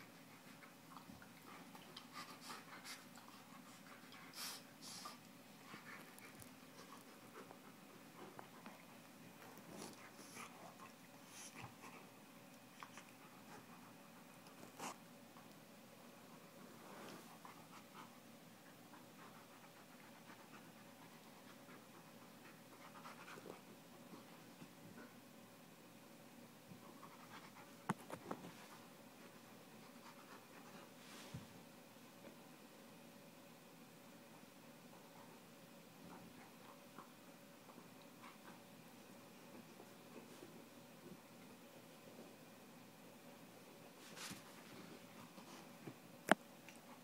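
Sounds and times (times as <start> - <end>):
dog and cat scuffling: 0.0 - 15.6, 26.7 - 32.4, 43.8 - 47.0
dog panting: 0.1 - 12.1, 17.1 - 25.2
soft scratchy scuffling: 44.0 - 45.7.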